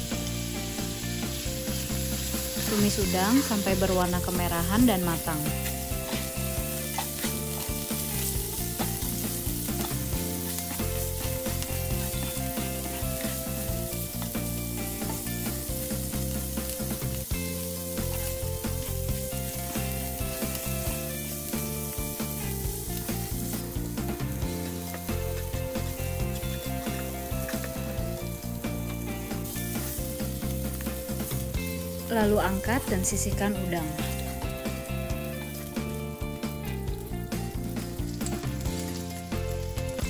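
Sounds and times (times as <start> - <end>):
shrimp sizzling in hot oil: 0.0 - 40.0
soft background music: 0.0 - 40.0
spatula scraping and tapping pan: 5.5 - 15.5.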